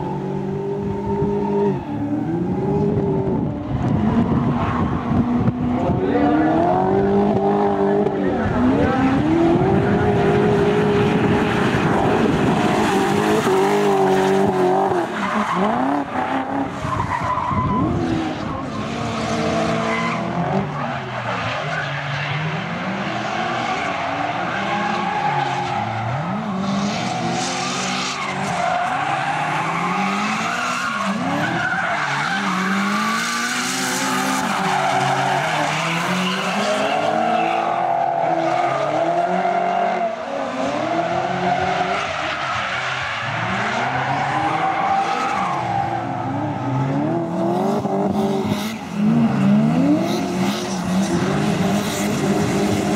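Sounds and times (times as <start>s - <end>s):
tyres squealing and skidding: 0.0s - 7.2s, 7.8s - 52.9s
car engine revving: 38.3s - 52.9s.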